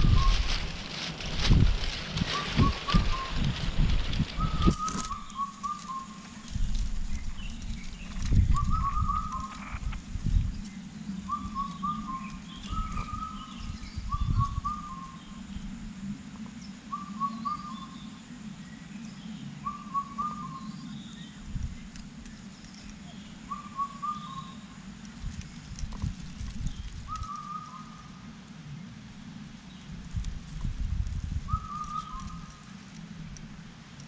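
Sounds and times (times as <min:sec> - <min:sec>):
bird whistling: 0:00.0 - 0:00.5, 0:02.3 - 0:03.5, 0:04.3 - 0:06.2, 0:08.5 - 0:09.8, 0:11.3 - 0:15.3, 0:16.9 - 0:18.0, 0:19.6 - 0:21.1, 0:23.5 - 0:24.6, 0:27.1 - 0:28.0, 0:31.5 - 0:32.5
low rumble: 0:00.0 - 0:17.0.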